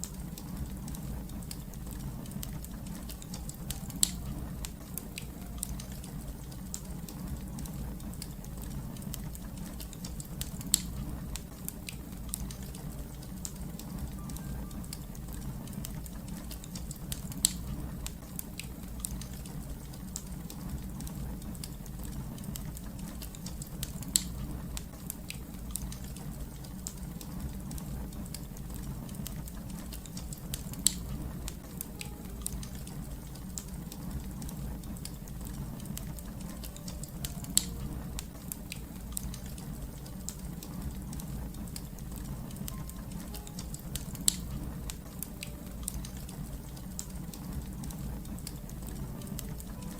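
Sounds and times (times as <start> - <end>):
fire crackling: 0.0 - 49.9
sharp fire pops: 0.4 - 14.2, 20.2 - 33.7.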